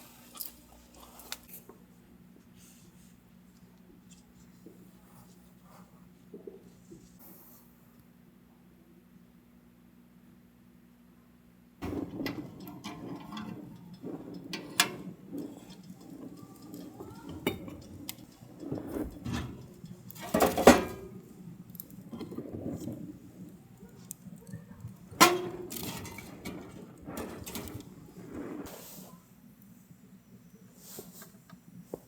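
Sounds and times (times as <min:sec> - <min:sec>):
dishes and utensils clinking: 0:11.8 - 0:28.5.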